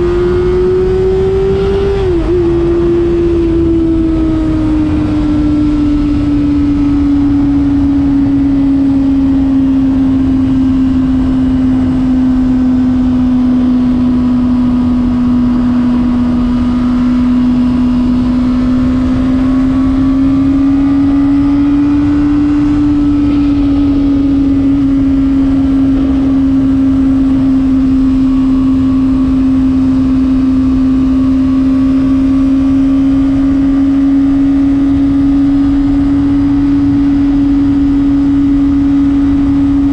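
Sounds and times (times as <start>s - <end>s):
motorcycle engine at high revs: 0.0s - 39.9s
wind noise: 0.0s - 39.9s.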